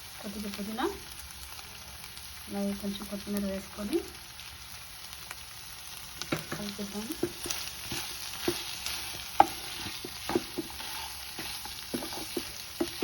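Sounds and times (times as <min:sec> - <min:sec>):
chicken sizzling in oil: 0:00.0 - 0:13.0
spatula scraping a pan: 0:07.2 - 0:13.0.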